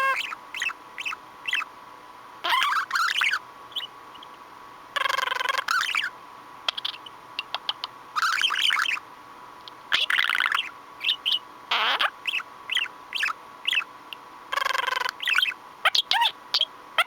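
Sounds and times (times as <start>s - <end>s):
budgerigar chattering and chirping: 0.0s - 1.7s, 2.4s - 4.4s, 5.0s - 9.0s, 9.9s - 17.0s.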